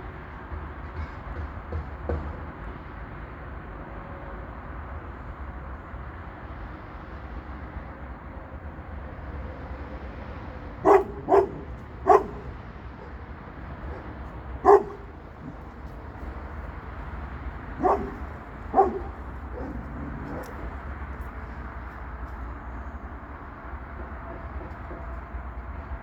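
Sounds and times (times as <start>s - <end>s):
dog barking: 10.8s - 13.2s, 13.8s - 15.7s, 17.8s - 20.7s
low background rumble: 13.8s - 23.9s.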